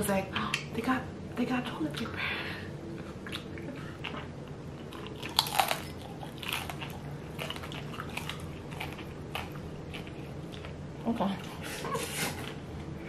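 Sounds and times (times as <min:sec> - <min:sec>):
person chewing and biting food: 0:03.0 - 0:10.8.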